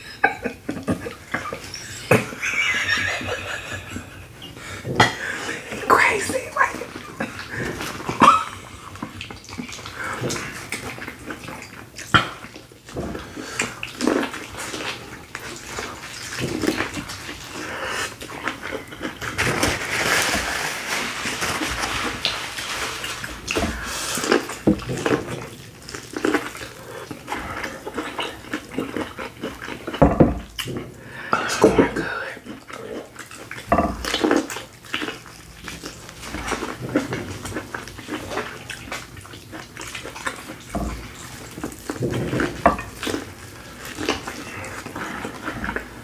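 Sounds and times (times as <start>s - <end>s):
wet chewing: 6.9s - 46.0s.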